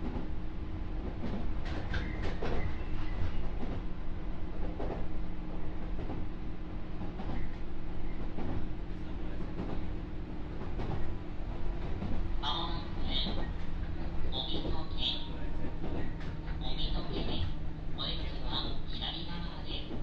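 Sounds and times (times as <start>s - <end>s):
train equipment humming: 0.0s - 20.0s
light knocks and clatters: 1.0s - 3.8s.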